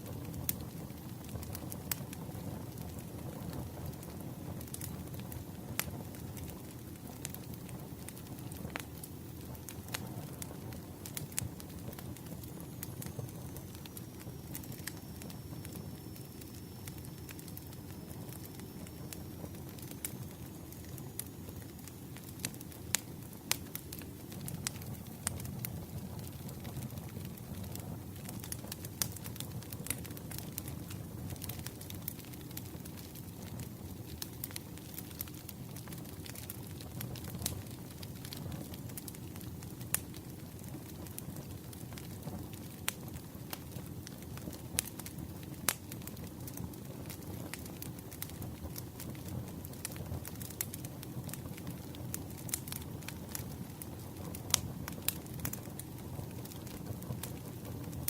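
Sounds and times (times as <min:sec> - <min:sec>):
campfire crackling: 0:00.0 - 0:58.0.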